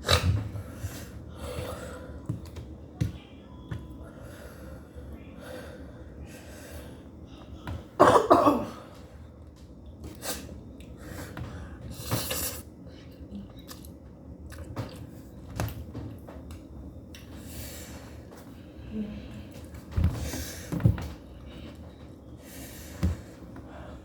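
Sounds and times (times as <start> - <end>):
person breathing: 0.6 - 2.3
person coughing: 8.0 - 8.9
person chewing: 13.3 - 15.0.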